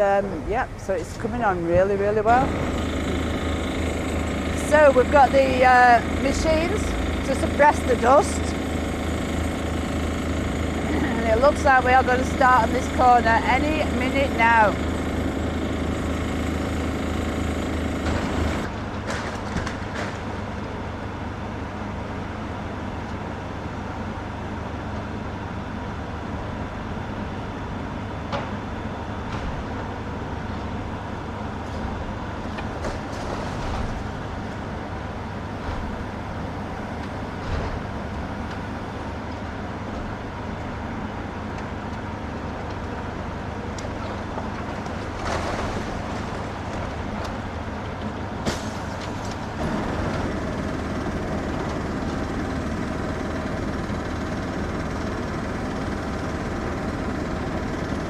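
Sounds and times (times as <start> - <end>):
heavy demolition machinery running: 0.0 - 21.6, 27.9 - 58.0.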